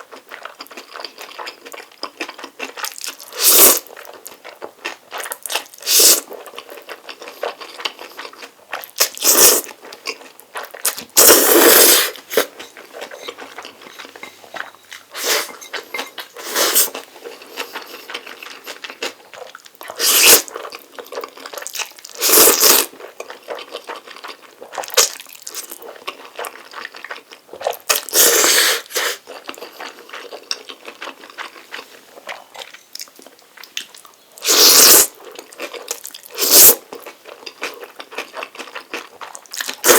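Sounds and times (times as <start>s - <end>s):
chewing and wet mouth sounds: 0.0s - 39.9s
noodle slurping: 3.3s - 3.8s, 5.8s - 6.3s, 9.2s - 9.7s, 11.2s - 18.2s, 19.9s - 20.5s, 22.2s - 22.9s, 34.4s - 35.2s, 36.3s - 36.8s.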